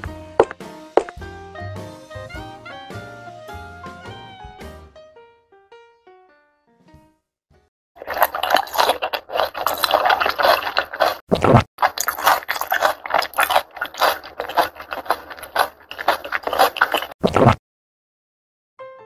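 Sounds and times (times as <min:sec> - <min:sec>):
crunching and chewing crisp food: 0:08.0 - 0:17.6.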